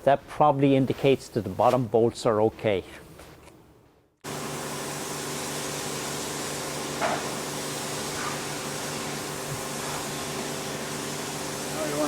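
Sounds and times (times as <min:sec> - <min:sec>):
machine humming with hiss: 0:04.2 - 0:12.0.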